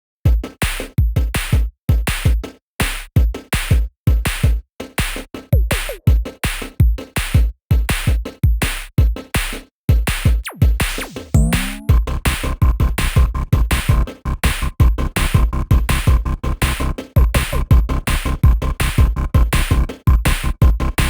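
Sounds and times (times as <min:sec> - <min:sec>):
drum machine beat: 0:00.3 - 0:21.0
electronic music: 0:10.4 - 0:21.0
deep bass hits: 0:11.4 - 0:16.3.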